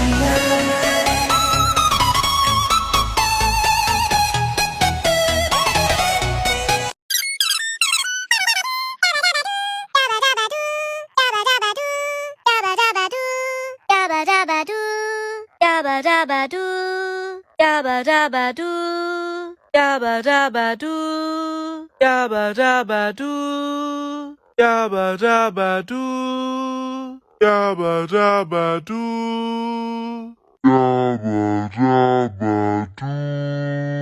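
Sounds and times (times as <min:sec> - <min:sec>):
pitch-shifted sung phrase: 0:29.0 - 0:34.0.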